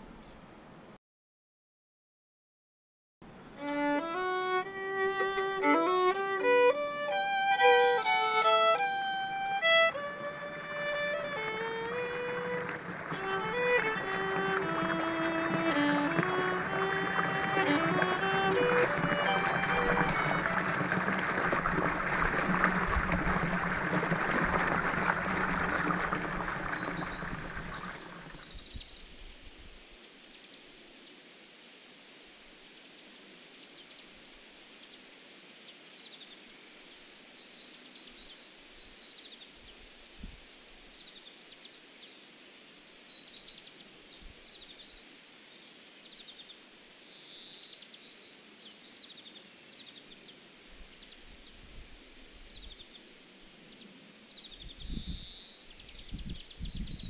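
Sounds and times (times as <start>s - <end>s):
small birds chirping: 24.2s - 29.1s, 53.7s - 57.0s.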